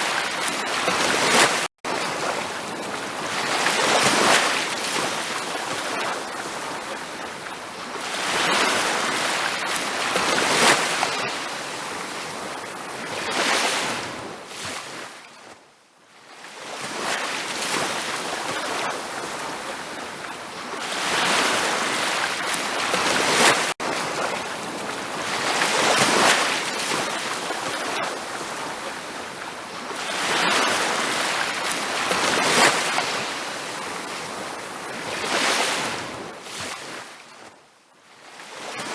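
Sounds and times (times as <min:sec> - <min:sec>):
ocean surf breaking: 0:00.0 - 0:07.2, 0:20.6 - 0:37.0.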